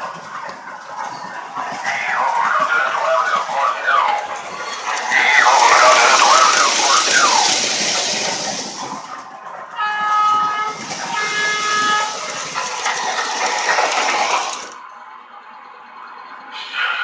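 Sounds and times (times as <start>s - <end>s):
model train rolling and motor noise: 0.0s - 15.0s
train horn blasts: 9.8s - 12.6s.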